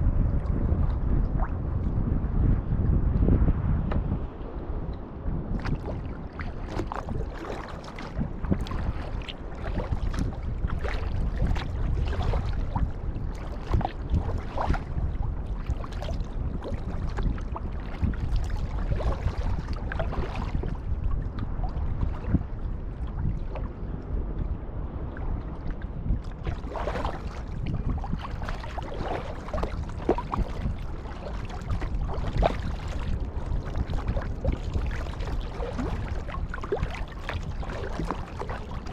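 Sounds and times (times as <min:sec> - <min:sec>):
wind buffeting microphone: 0:00.0 - 0:38.9
paddle splashing in water: 0:05.6 - 0:23.7, 0:25.6 - 0:38.9.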